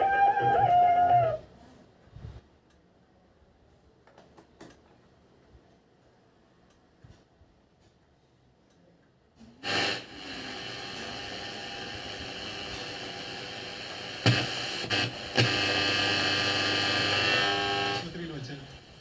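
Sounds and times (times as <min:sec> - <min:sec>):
radio static hiss: 0:09.6 - 0:19.0.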